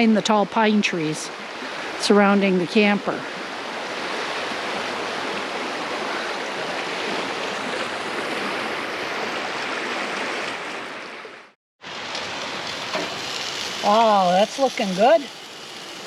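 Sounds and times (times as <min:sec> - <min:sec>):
creek water rushing: 0:03.2 - 0:16.0
soft steady hiss: 0:12.6 - 0:16.0.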